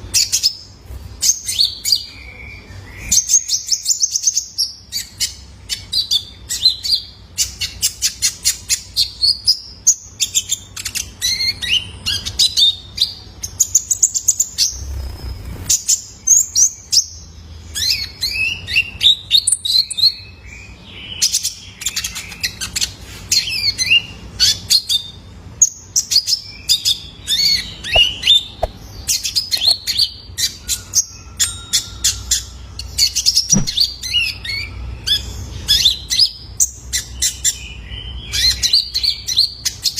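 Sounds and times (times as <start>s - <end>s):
sunbird chirping and trilling: 0.0s - 39.9s.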